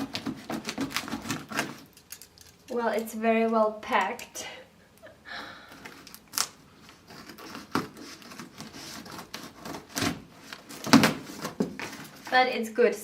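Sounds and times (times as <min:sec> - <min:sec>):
packing material tearing and rustling: 0:00.0 - 0:02.8, 0:05.8 - 0:12.4.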